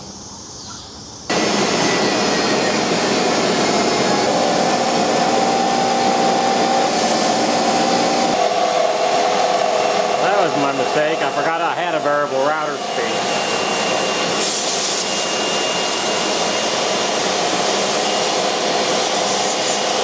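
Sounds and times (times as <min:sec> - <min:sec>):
router spindle whining: 0:01.3 - 0:20.0.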